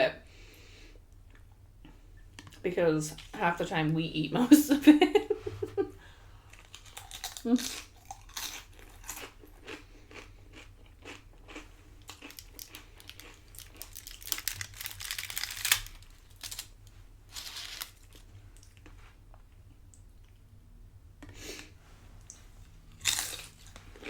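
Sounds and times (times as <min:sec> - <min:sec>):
chewing crunchy chips: 0:06.5 - 0:19.0, 0:22.9 - 0:24.0.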